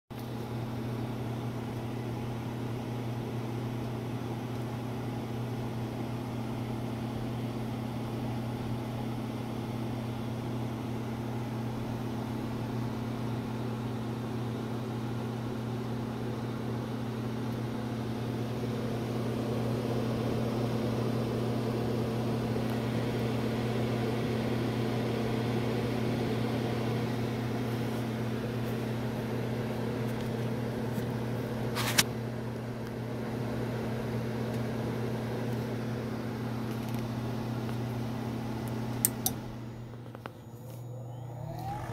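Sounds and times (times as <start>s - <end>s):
electric motor humming: 40.4s - 41.9s.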